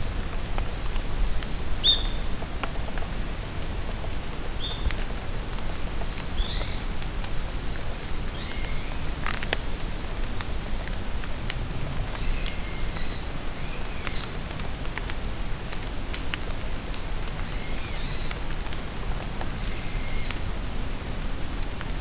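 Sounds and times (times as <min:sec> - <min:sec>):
rain falling in forest: 0:00.0 - 0:22.0
songbird singing: 0:00.7 - 0:03.6, 0:04.6 - 0:10.2, 0:12.1 - 0:14.4.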